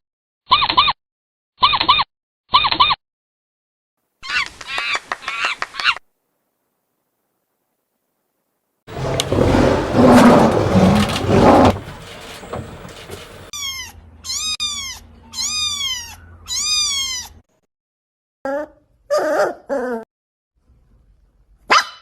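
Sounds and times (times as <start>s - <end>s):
cat meowing: 13.6s - 17.4s.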